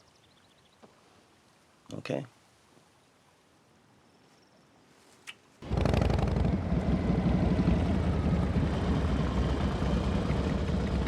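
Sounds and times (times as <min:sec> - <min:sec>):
motorcycle engine running: 0:05.6 - 0:11.0.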